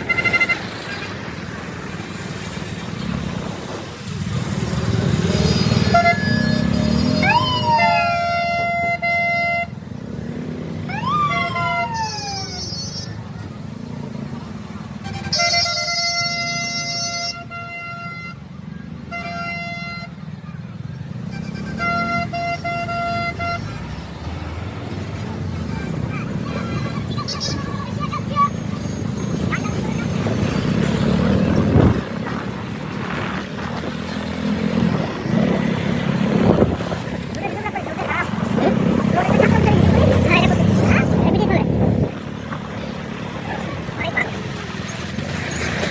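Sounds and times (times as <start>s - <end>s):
siren-style vehicle horn wailing: 0.0s - 0.9s, 5.2s - 9.8s, 10.8s - 13.2s, 15.0s - 20.4s
engines and road traffic rumble: 0.0s - 45.9s.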